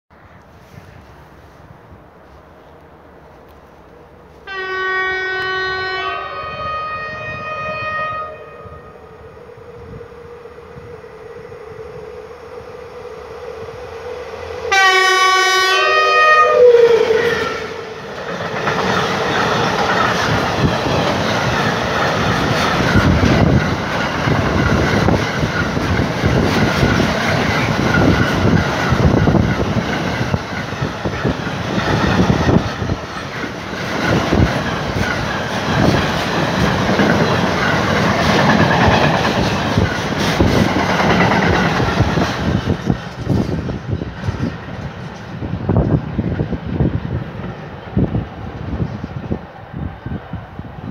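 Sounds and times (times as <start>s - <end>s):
train passing rumble: 0.1s - 50.9s
locomotive horn blast: 4.4s - 9.2s, 14.6s - 18.0s.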